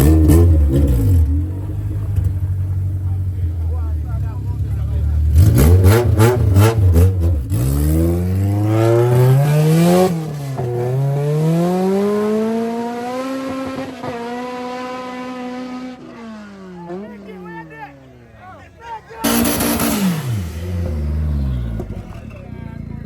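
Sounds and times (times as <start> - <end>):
car accelerating hard: 0.0 - 23.0
car engine revving: 0.0 - 23.0.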